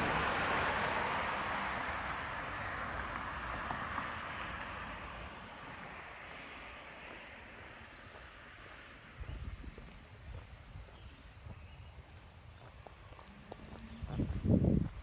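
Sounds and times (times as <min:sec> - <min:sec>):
car driving past: 0:00.0 - 0:07.7.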